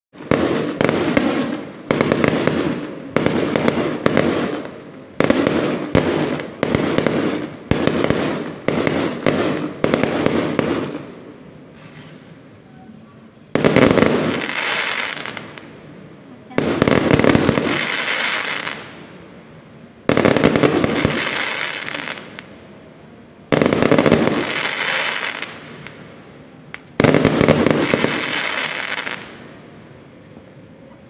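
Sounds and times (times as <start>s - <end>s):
fireworks bangs: 0.1s - 31.0s
fireworks crackling: 0.1s - 31.0s.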